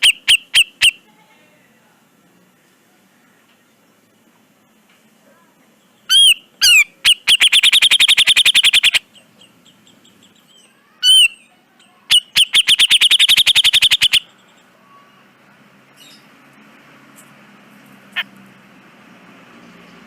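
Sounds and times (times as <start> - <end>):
bird sharp calls: 0.0 - 1.0, 5.9 - 15.3, 18.1 - 18.4.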